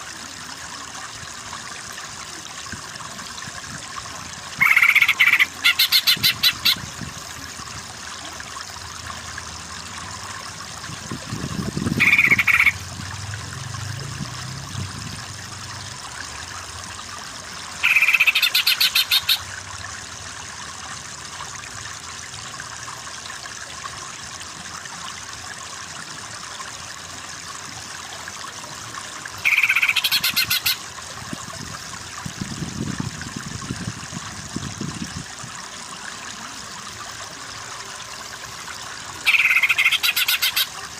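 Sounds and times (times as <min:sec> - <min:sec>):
running water: 0:00.0 - 0:40.9
bird rattling trill calls: 0:04.6 - 0:06.8, 0:11.9 - 0:12.8, 0:17.8 - 0:19.4, 0:29.4 - 0:30.8, 0:39.2 - 0:40.7.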